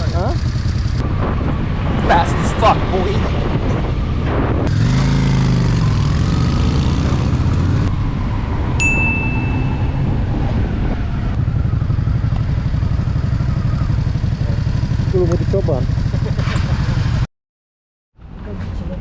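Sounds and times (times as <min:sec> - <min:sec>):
motorcycle engine running: 0:00.0 - 0:01.0, 0:04.7 - 0:07.9, 0:11.4 - 0:17.3
wind rumble on microphone: 0:00.0 - 0:14.1
sharp high ding: 0:08.8 - 0:10.3.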